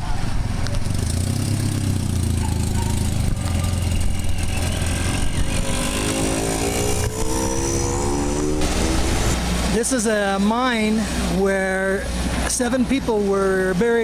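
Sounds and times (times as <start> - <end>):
engine rumbling: 0.0 - 14.0
second engine rising in pitch: 0.9 - 9.7.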